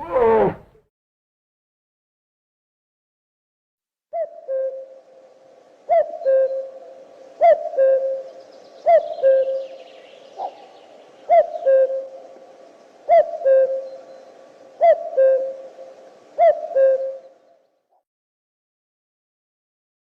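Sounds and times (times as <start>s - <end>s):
bird hooting call: 4.1s - 17.6s.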